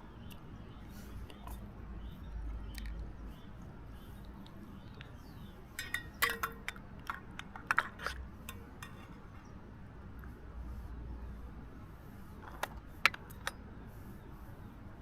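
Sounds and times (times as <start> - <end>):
small hard objects clinking: 5.8 - 9.2.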